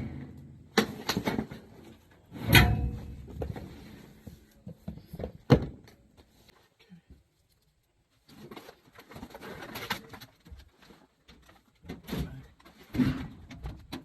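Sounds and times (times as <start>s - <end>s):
hard parts knocking and clunking: 0.0s - 3.9s.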